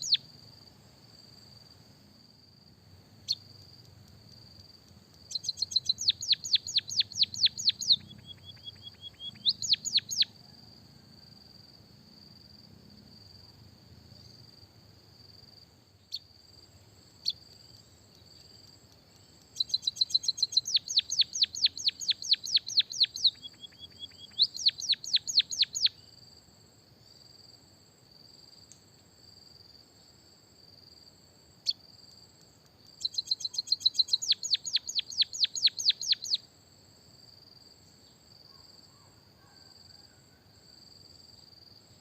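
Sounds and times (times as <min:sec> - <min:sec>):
songbird singing rapid rolls: 0:00.0 - 0:00.3, 0:03.1 - 0:10.4, 0:16.0 - 0:26.2, 0:32.8 - 0:36.4.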